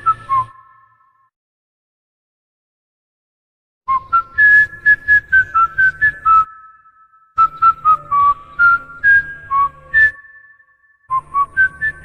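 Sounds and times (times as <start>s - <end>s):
faint whistled note: 0.0s - 1.3s, 3.9s - 12.0s.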